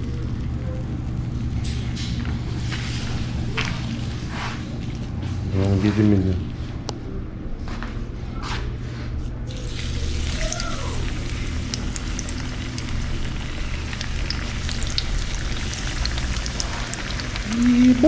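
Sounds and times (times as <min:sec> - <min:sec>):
fish sizzling in hot grease: 0:09.5 - 0:18.0.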